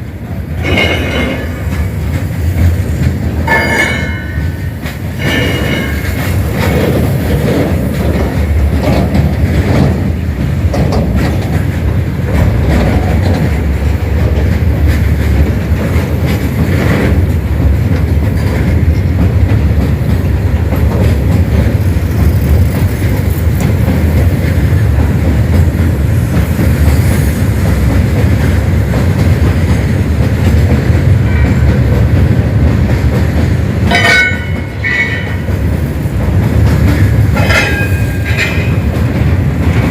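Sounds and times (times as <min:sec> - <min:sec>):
freight train rolling past: 0:00.0 - 0:39.9
wheels clacking over rail joints: 0:00.0 - 0:39.9.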